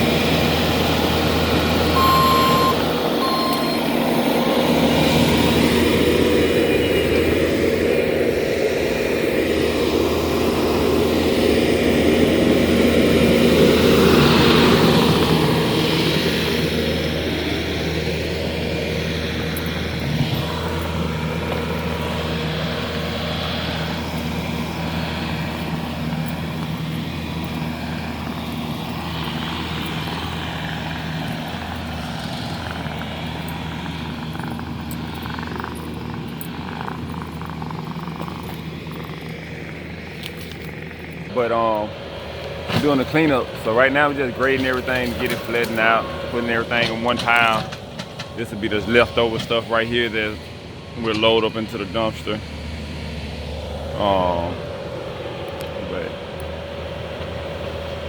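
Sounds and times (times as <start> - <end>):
heavy equipment engine droning: 0.0 - 58.0.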